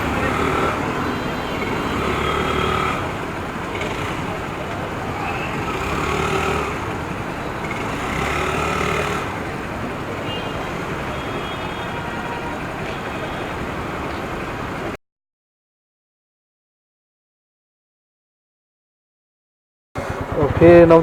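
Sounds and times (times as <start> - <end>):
motorcycle engine: 0.0 - 15.0, 20.0 - 21.0
vehicles passing: 0.0 - 15.0, 20.0 - 21.0.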